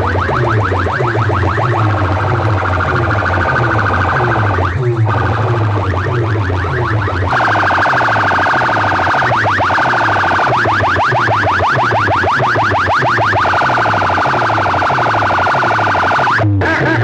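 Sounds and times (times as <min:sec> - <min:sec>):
pulsing bass beat: 0:00.0 - 0:17.0
siren-style alarm through loudspeakers: 0:00.0 - 0:17.0.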